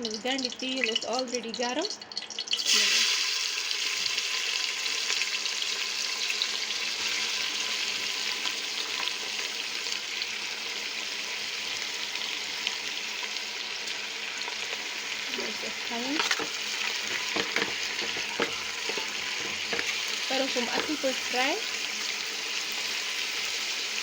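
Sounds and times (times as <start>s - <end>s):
onions sizzling in hot oil: 0.0s - 24.0s.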